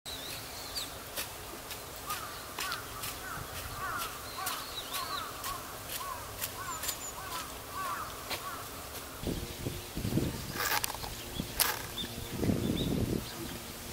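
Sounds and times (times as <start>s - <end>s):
wild birds calling: 0.1s - 13.9s
sharp clicks: 10.6s - 12.1s.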